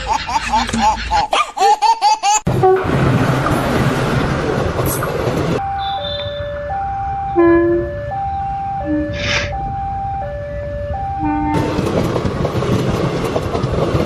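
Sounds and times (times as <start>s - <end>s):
two-tone hi-lo siren: 5.6s - 11.6s.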